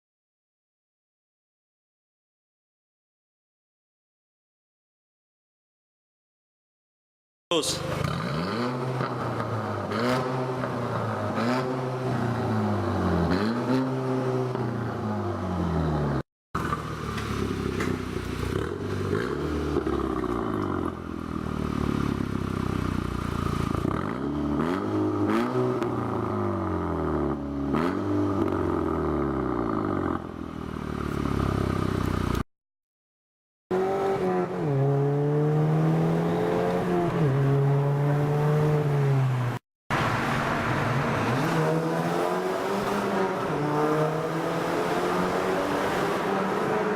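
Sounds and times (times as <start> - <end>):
car engine revving: 7.6 - 22.4, 23.6 - 32.0, 33.7 - 46.9.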